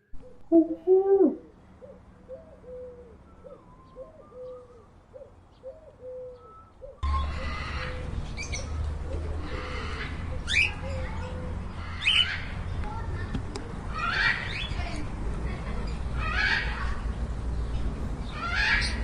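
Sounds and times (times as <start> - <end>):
pigeon cooing: 0.0 - 11.6.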